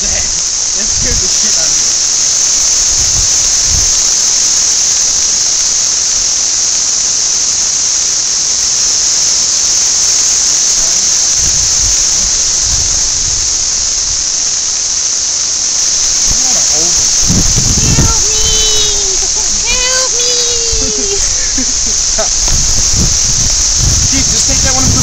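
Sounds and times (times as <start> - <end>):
cicadas droning: 0.0 - 25.0
low rumbling: 15.8 - 25.0.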